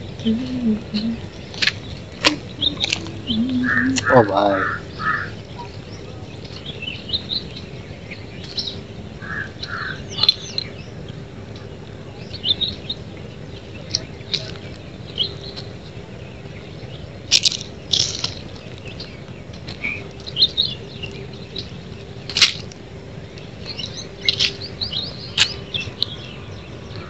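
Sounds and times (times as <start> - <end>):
faint low hum: 0.0 - 27.0
wild birds chirping: 0.0 - 27.0.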